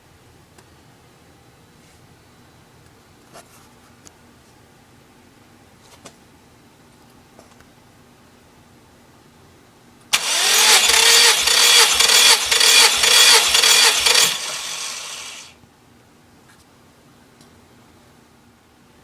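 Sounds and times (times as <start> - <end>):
engine starter cranking: 10.2 - 15.5
engine starting: 10.2 - 15.5.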